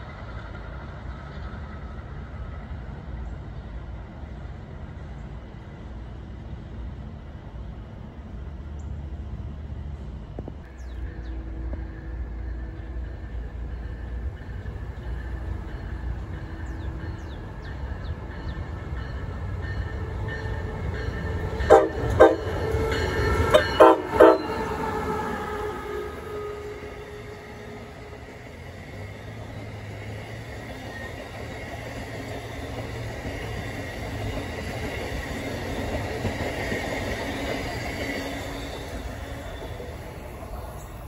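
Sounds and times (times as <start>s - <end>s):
train cars rumbling on rails: 0.0s - 41.0s
train horn blasts: 19.9s - 28.5s.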